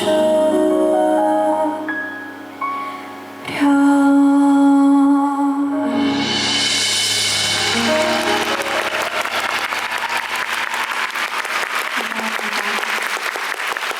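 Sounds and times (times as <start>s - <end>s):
cymbal wash: 6.0s - 10.2s
audience applause: 7.4s - 13.9s.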